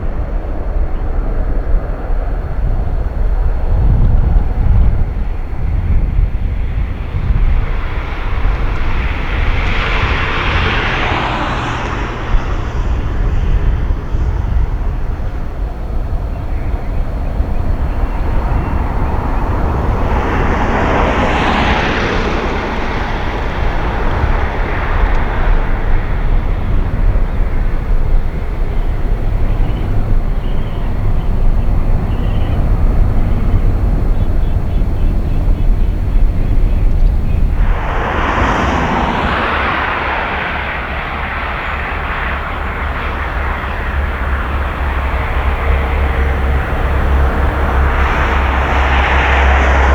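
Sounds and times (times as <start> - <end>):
jet airliner engine rumble: 0.0 - 49.9
hissing roar: 37.4 - 49.9.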